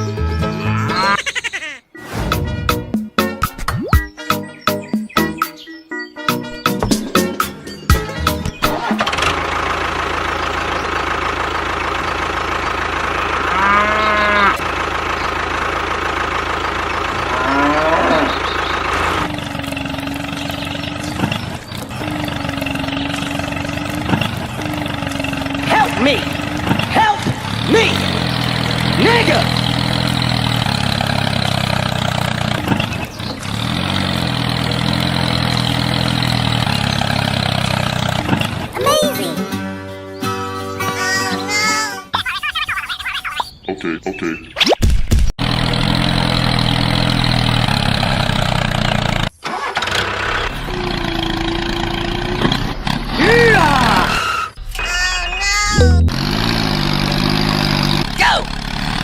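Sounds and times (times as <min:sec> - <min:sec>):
small engine running: 0:08.7 - 0:38.8, 0:45.4 - 0:59.0
cow mooing: 0:13.4 - 0:14.6, 0:17.2 - 0:18.5.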